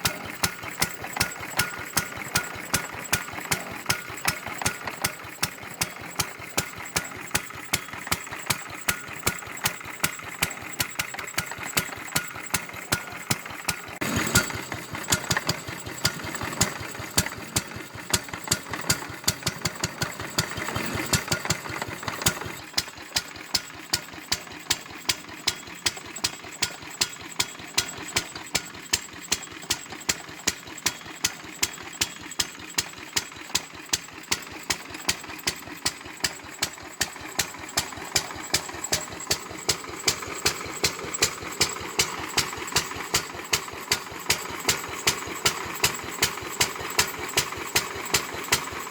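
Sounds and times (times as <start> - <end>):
stationary engine beating slowly: 12.3 - 22.8, 33.6 - 48.9.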